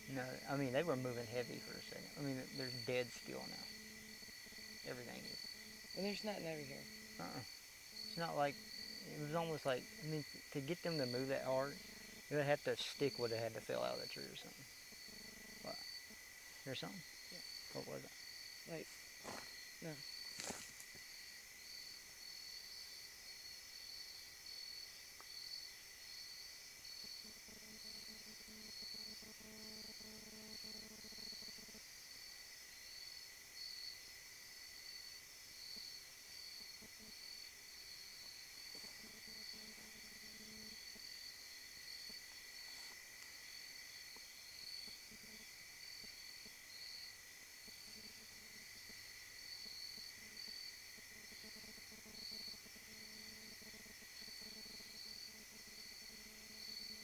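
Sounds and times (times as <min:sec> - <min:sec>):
faint low hum: 0:00.0 - 0:21.9
insects trilling: 0:00.0 - 0:57.0.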